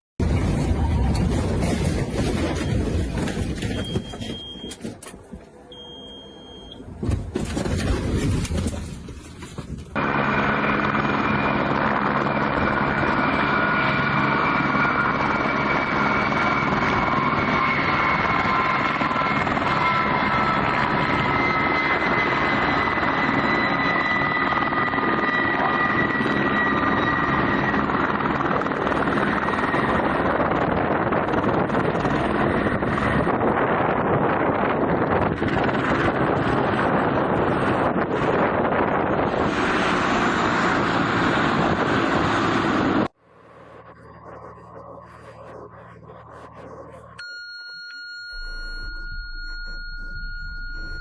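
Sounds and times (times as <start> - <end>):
aircraft turbine engine running: 6.8 - 47.2.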